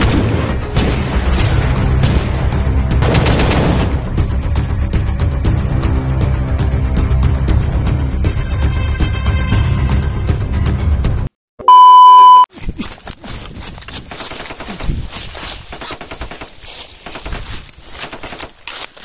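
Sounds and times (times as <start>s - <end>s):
background music: 0.0s - 11.3s
loud electronic beep: 11.6s - 12.5s
footsteps through dry leaves: 12.5s - 19.0s.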